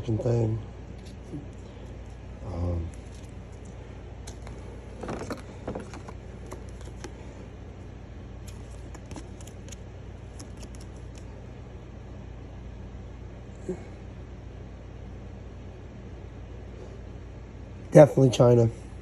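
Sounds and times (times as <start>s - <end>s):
steady low hum: 0.0s - 19.0s
rustling and knocking: 4.3s - 7.2s.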